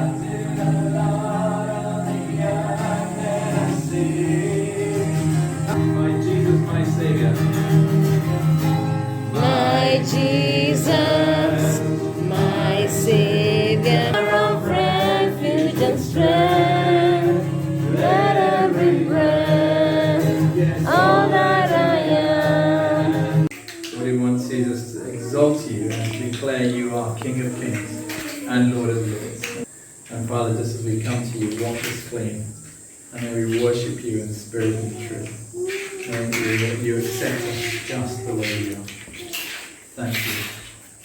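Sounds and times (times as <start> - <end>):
lead voice singing melody: 0.0 - 8.6, 9.3 - 23.5
sustained instrumental backing: 0.0 - 23.5
gospel choir singing: 0.0 - 29.7.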